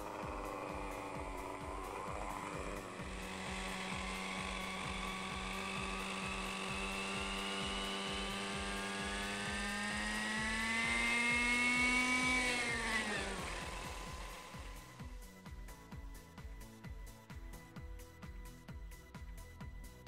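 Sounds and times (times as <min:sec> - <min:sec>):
model helicopter engine whining: 0:00.0 - 0:15.0.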